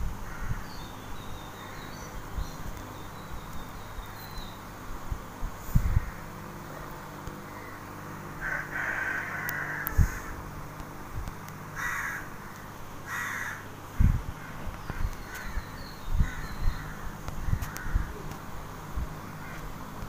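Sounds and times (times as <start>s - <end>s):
steady low hum: 0.0s - 20.0s
bird cawing: 0.2s - 2.2s, 5.8s - 10.5s, 11.7s - 13.8s, 14.4s - 18.4s, 19.3s - 19.8s.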